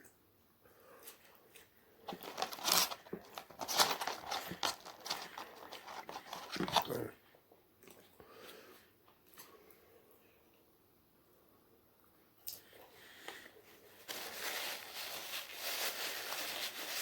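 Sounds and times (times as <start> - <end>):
fast food wrapper crinkling: 2.1 - 7.0, 14.0 - 17.0.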